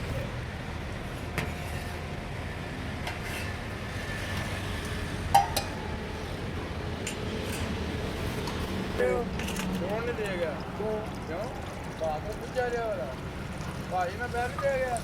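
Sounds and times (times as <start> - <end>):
road traffic rumble: 0.0 - 15.0
dishes clinking: 5.4 - 5.8.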